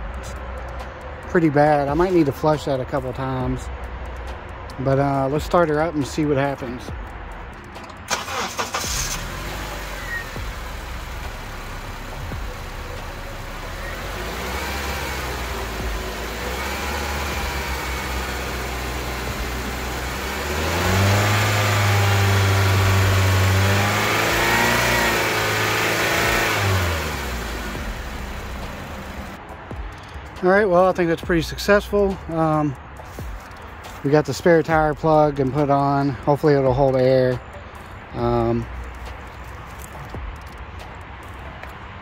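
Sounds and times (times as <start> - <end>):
car engine starting and idling: 7.6 - 29.4
car engine revving: 8.1 - 29.4.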